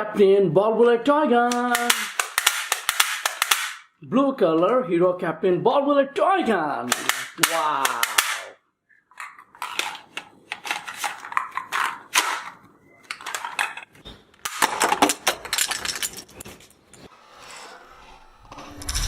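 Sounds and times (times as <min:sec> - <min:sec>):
plastic toy gun clicks and rattles: 0:01.5 - 0:03.8, 0:06.9 - 0:08.5, 0:09.1 - 0:12.5, 0:13.1 - 0:16.2.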